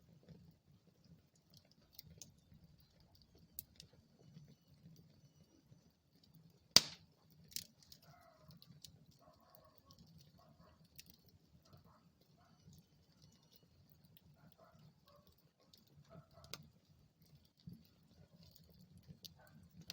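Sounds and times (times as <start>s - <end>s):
fire crackles: 0.0s - 19.9s
sharp pop from fire: 6.8s - 7.1s.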